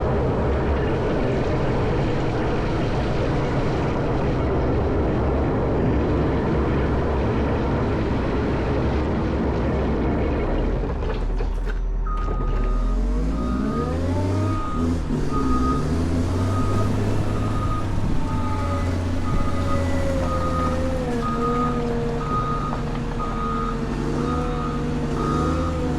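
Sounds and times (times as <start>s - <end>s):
diesel engine working hard: 0.0s - 25.9s
reversing alarm beeping: 11.7s - 25.9s.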